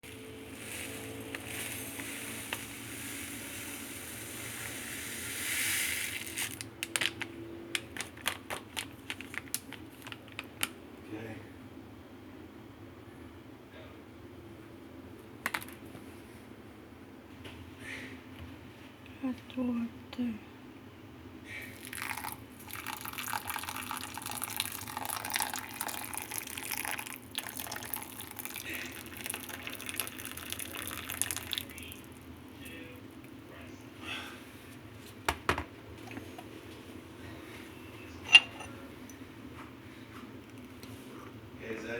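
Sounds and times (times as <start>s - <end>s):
hot water pouring into container: 0.1s - 6.8s, 21.6s - 32.3s
plastic snack packet crinkling: 6.1s - 10.8s.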